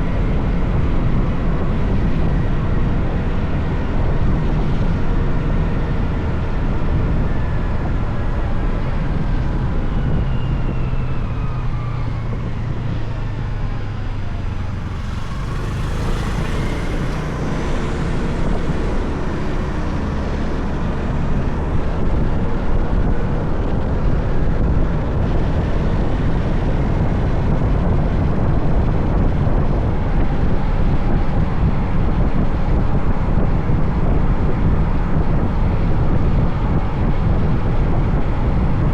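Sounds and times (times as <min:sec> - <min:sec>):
wind rushing over microphone: 0:00.0 - 0:38.9
motorcycle engine running: 0:12.6 - 0:38.8.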